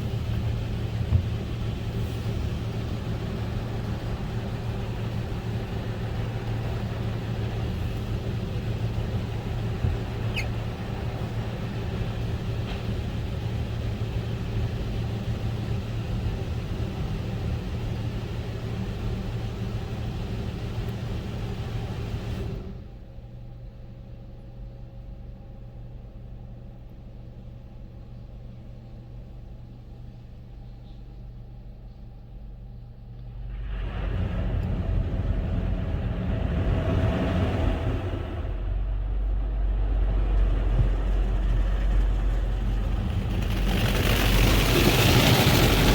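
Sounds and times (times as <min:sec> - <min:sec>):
automatic car wash rushing: 0:00.0 - 0:23.0, 0:33.3 - 0:45.9
low machine hum: 0:00.0 - 0:45.9.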